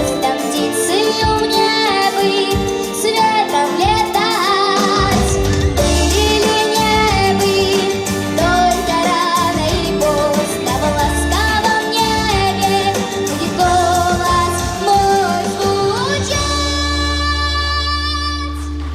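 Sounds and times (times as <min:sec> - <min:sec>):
girl singing: 0:00.0 - 0:18.8
pop backing track with beat: 0:00.0 - 0:18.9.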